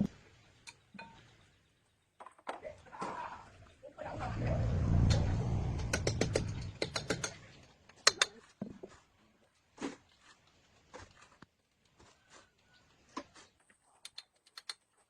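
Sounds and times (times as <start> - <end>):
low rumble: 4.0 - 7.0
sharp clicks: 5.0 - 7.4.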